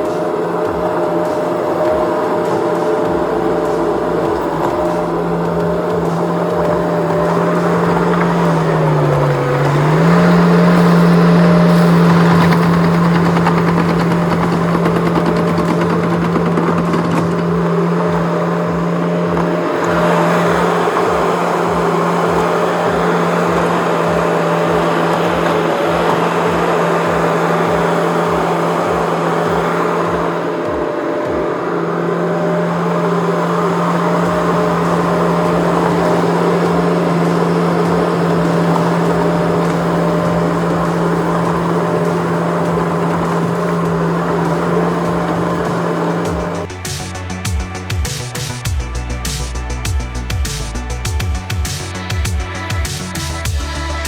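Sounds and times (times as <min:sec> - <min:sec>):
broad rushing noise: 0:00.0 - 0:54.0
low regular pulsing: 0:00.0 - 0:54.0
skid steer engine high revs: 0:00.0 - 0:54.0.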